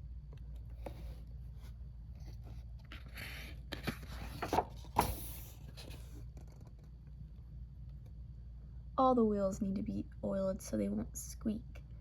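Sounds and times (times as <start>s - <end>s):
steady low hum: 0.0s - 12.0s
soft knocks handling book: 0.6s - 6.9s
book page turning: 0.7s - 6.9s.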